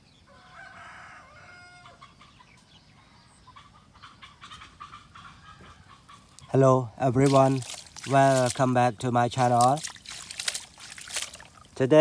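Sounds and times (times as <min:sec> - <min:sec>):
rooster crowing: 0:00.3 - 0:02.0.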